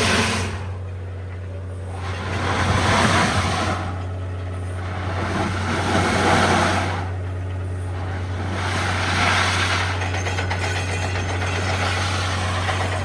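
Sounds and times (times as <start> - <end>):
rushing noise: 0.0 - 0.8, 1.9 - 7.3, 7.9 - 13.0
drilling rig engine hum: 0.0 - 13.0.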